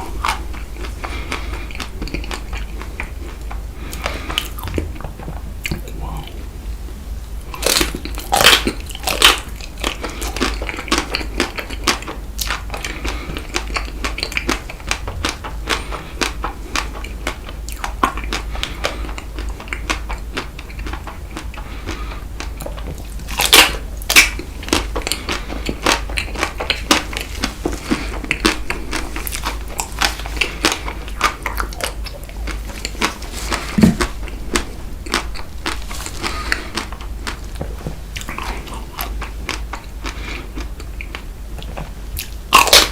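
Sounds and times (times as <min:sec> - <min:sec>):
crunching and wet chewing: 0:00.0 - 0:42.9.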